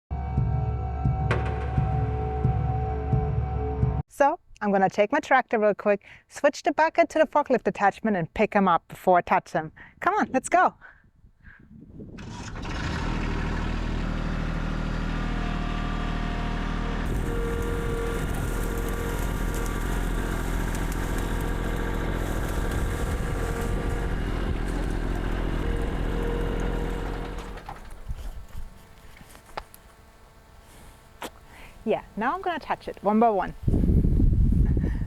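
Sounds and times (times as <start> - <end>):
tractor engine running: 12.2 - 31.1
engine whine: 12.2 - 32.2.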